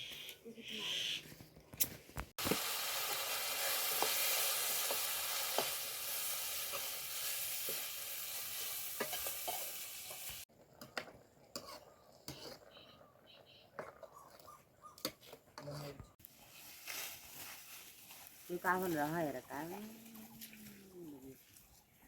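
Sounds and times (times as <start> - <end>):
food sizzling in hot oil: 2.4 - 10.5.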